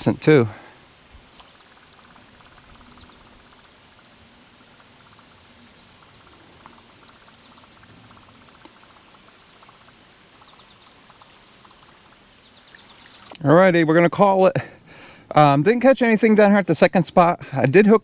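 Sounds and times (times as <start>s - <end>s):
creek water running over rocks: 0.0s - 18.0s
light ticks: 6.0s - 13.4s.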